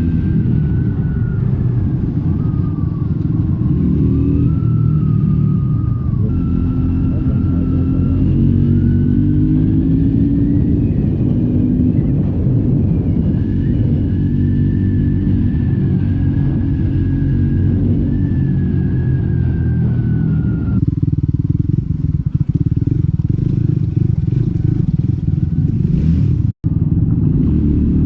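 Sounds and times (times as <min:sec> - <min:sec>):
thin whine: 0:00.0 - 0:20.9
motorcycle engine: 0:00.0 - 0:28.0.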